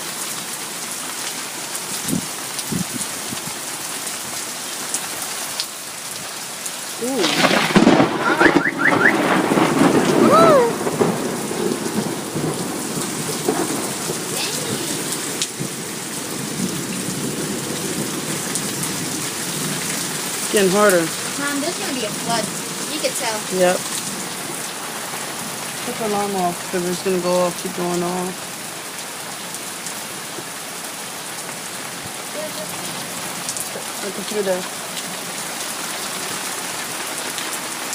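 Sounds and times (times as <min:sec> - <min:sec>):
heavy rain falling: 0:00.0 - 0:37.9
thunder: 0:07.0 - 0:14.4.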